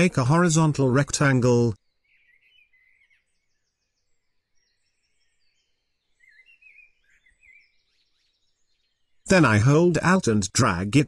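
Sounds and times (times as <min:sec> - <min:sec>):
faint bird chirps: 0:01.6 - 0:10.0.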